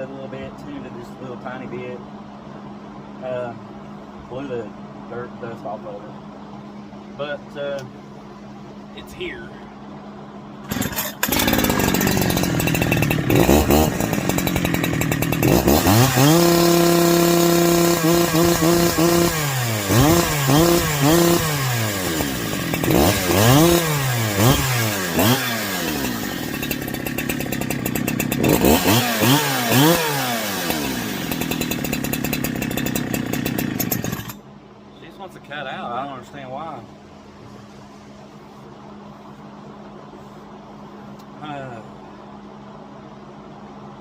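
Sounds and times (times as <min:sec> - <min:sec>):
chainsaw revving and stuttering: 0:10.7 - 0:34.4.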